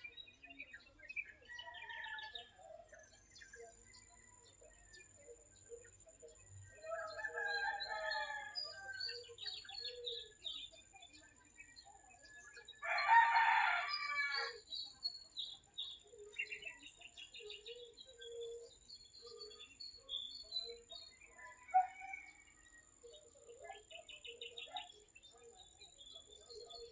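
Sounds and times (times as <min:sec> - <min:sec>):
small birds chirping: 0:00.0 - 0:26.9
roosters crowing: 0:07.0 - 0:09.0, 0:12.8 - 0:14.6.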